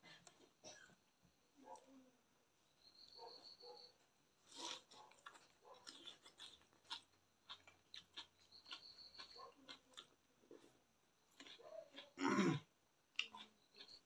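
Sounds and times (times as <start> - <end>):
chewing and wet mouth clicks: 4.5 - 10.7, 11.3 - 12.2, 13.1 - 14.0.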